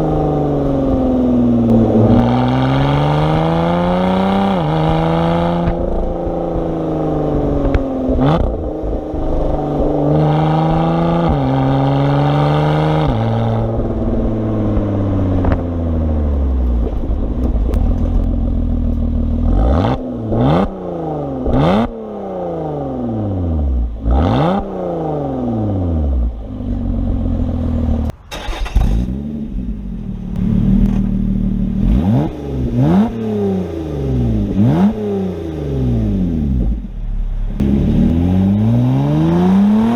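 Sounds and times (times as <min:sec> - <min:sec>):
car engine accelerating hard: 0:00.0 - 0:39.9
engine rev blips: 0:01.5 - 0:16.1.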